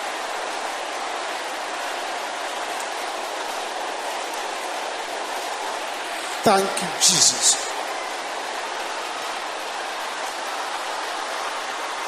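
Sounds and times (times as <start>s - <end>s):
congregation praying aloud: 6.2s - 7.8s.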